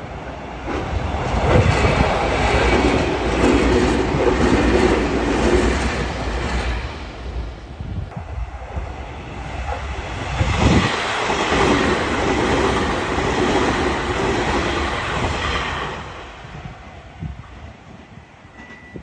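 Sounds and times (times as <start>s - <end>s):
electric train running past: 0.0s - 19.0s.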